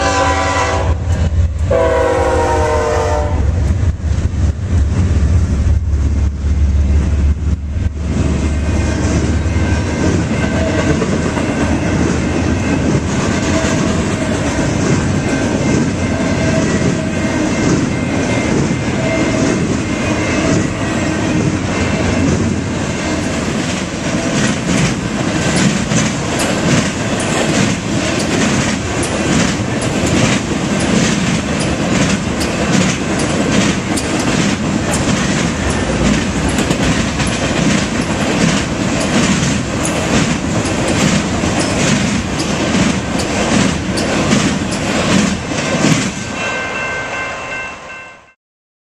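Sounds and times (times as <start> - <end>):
freight train rumble: 0.0 - 48.3
wheels rushing on rail: 0.0 - 48.4
wheels clicking over rail joints: 23.2 - 46.2.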